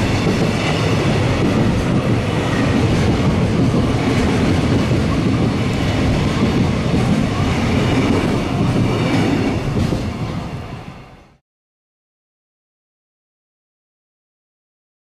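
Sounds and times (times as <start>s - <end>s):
freight train wheels rumbling: 0.0s - 11.4s.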